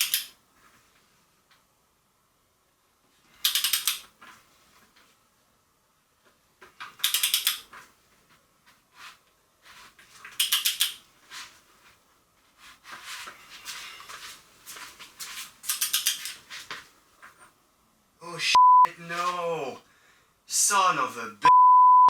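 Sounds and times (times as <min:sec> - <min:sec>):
ratchet clicking: 0:03.4 - 0:04.0, 0:07.0 - 0:07.6, 0:10.4 - 0:11.0, 0:15.7 - 0:16.4.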